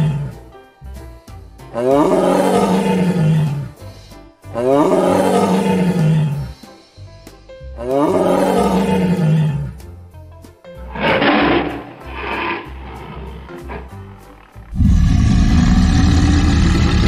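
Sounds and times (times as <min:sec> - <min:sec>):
tiger roaring: 0:00.0 - 0:00.4, 0:01.8 - 0:03.8, 0:04.6 - 0:06.6, 0:07.8 - 0:09.8, 0:10.9 - 0:17.0
background music: 0:00.0 - 0:17.0.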